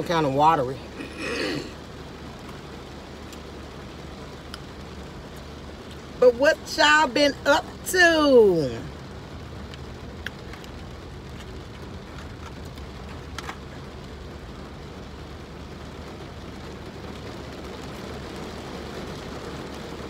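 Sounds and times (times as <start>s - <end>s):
rain on a car roof: 0.0s - 20.0s.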